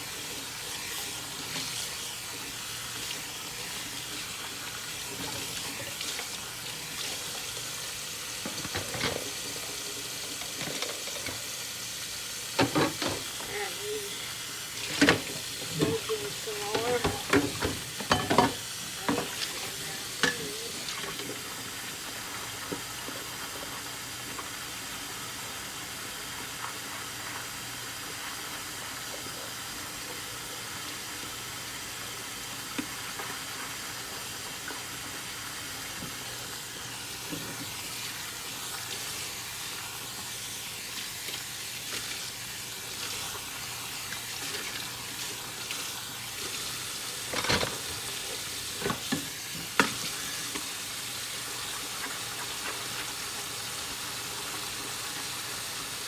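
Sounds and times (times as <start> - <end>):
tap water running: 0.0 - 56.0
dishes clinking: 12.6 - 13.4, 14.9 - 20.7.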